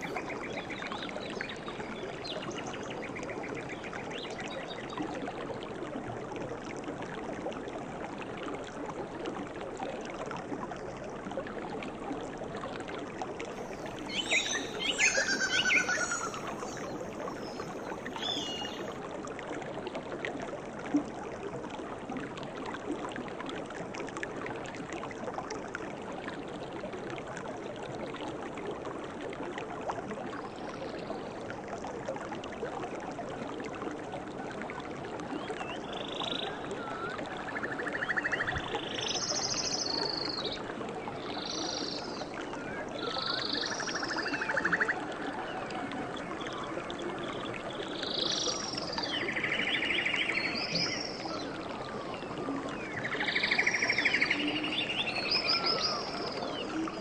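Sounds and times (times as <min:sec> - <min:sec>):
flowing water rushing: 0:00.0 - 0:57.0
birds chirping: 0:13.7 - 0:18.9
buzzy trilled bird call: 0:14.1 - 0:16.9.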